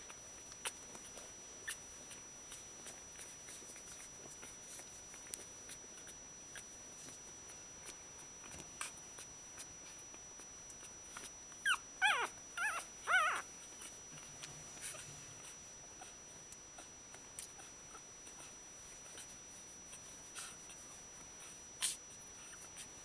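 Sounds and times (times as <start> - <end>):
faint clicks and scuffles: 0.0 - 11.6
puppies crying: 11.6 - 13.8.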